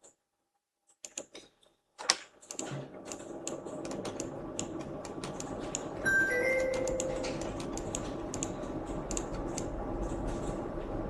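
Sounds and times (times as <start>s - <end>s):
computer keyboard clicking: 6.6s - 10.6s.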